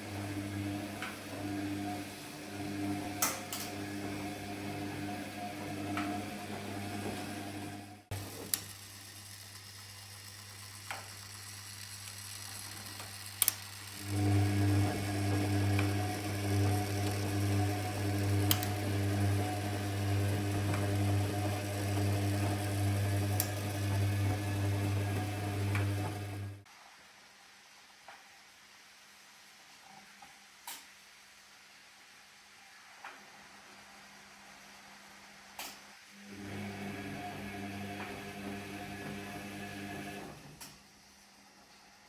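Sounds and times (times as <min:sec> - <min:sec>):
washing machine humming: 0:00.0 - 0:26.7, 0:36.2 - 0:42.0.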